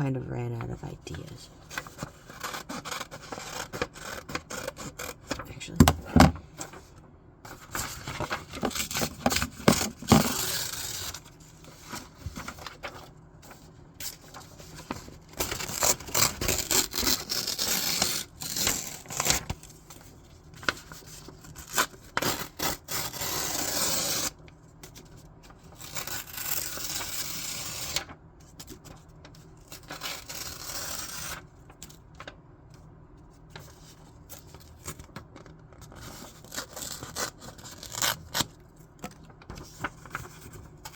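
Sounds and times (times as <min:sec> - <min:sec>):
scissors cutting paper: 0:01.8 - 0:05.4, 0:07.8 - 0:11.3, 0:15.4 - 0:19.5, 0:21.6 - 0:24.3, 0:29.8 - 0:31.4, 0:35.9 - 0:38.5
paper rustling: 0:33.3 - 0:40.9.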